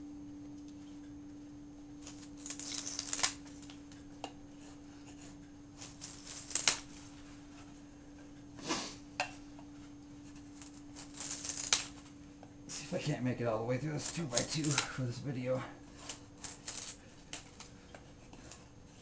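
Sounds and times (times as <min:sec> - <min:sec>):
steady low hum: 0:00.0 - 0:19.0
knife shaving wood: 0:02.0 - 0:03.8, 0:04.6 - 0:07.6, 0:10.2 - 0:19.0.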